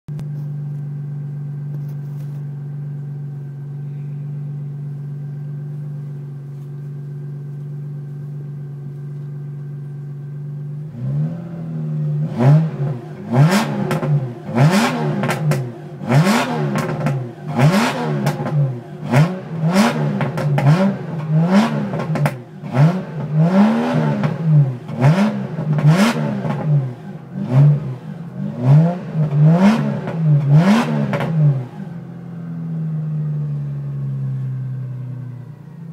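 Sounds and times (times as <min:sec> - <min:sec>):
exhaust crackles and pops: 0:00.1 - 0:03.6, 0:04.9 - 0:10.3, 0:12.4 - 0:31.7
car exhaust idling and revving: 0:00.1 - 0:35.9.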